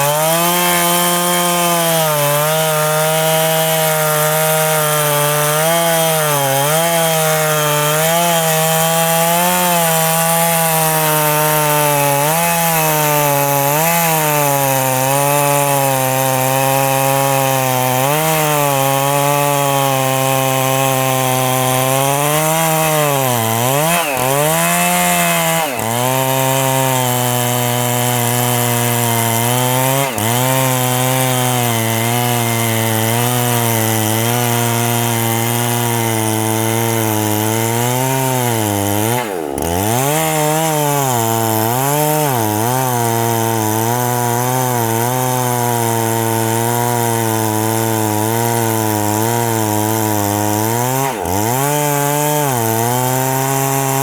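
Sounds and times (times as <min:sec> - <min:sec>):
chainsaw cutting tree trunk: 0:00.0 - 0:54.0.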